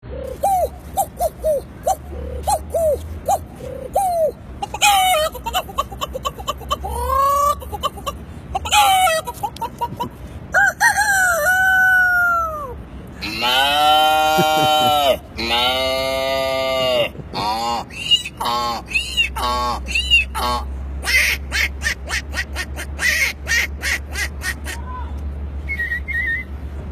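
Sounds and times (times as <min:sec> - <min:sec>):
man imitating chicken clucks: 0:00.0 - 0:25.1
man imitating rooster crow: 0:10.6 - 0:17.1
low drawn-out animal call: 0:10.9 - 0:20.7.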